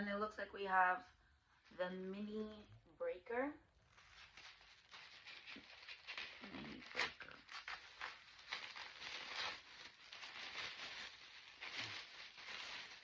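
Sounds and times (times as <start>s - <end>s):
packaging rustling and scraping: 3.9s - 13.0s.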